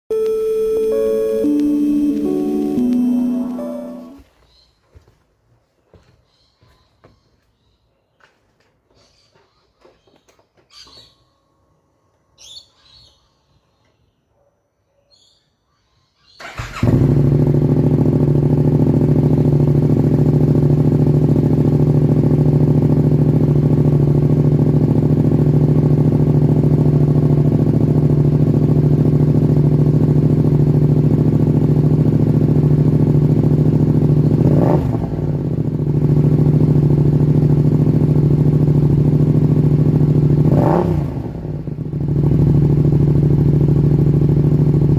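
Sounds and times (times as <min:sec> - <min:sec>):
throttle blip: 0:00.1 - 0:04.2
motorcycle engine starting: 0:00.2 - 0:04.2, 0:16.4 - 0:44.9
motorcycle engine idling: 0:16.4 - 0:44.9.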